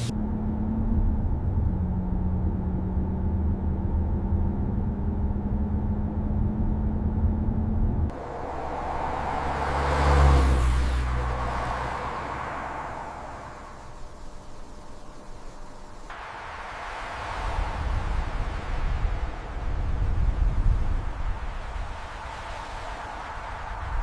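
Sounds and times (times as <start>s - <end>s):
heavy engine droning: 0.0s - 16.9s
vehicle passing by: 8.1s - 24.0s.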